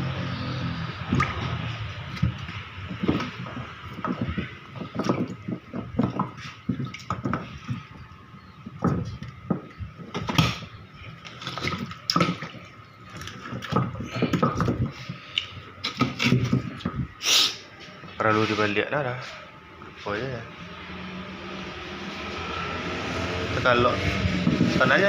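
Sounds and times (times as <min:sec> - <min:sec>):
water splashing and dripping: 0:00.7 - 0:08.0, 0:08.6 - 0:15.8
knocks and clatter: 0:01.1 - 0:07.9.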